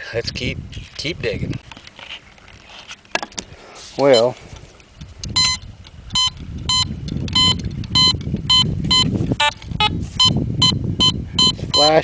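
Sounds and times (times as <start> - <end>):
metal detector beeping: 4.0 - 4.4, 5.3 - 12.0
lower metal detector beep: 4.1 - 4.4, 5.3 - 12.0.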